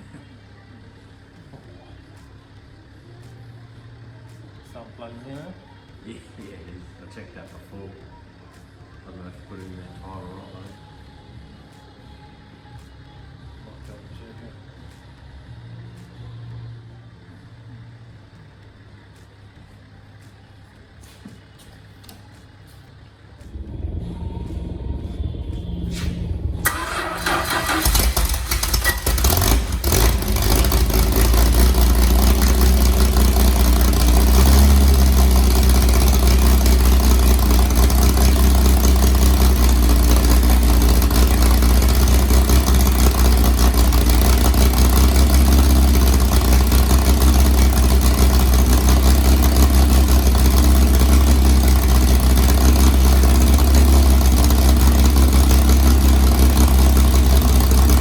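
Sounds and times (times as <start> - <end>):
car engine starting and idling: 23.2 - 58.0.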